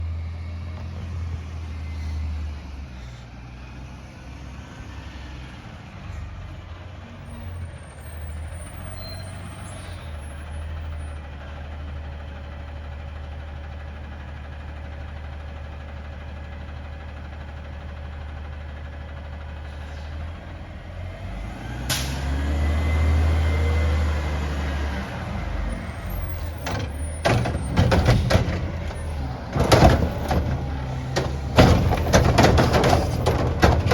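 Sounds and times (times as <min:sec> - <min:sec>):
diesel engine idling: 0:00.0 - 0:21.8, 0:22.5 - 0:33.9
loud knocks: 0:26.4 - 0:33.9.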